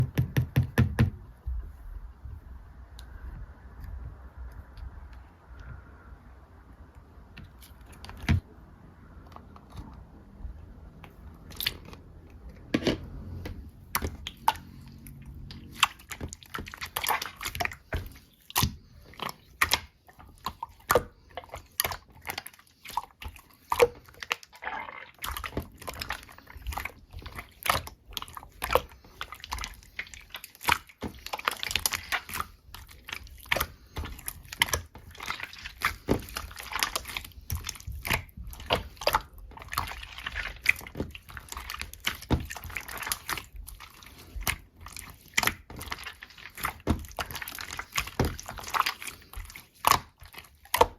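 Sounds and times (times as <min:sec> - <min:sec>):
slime squished by hand: 0:13.5 - 0:50.9.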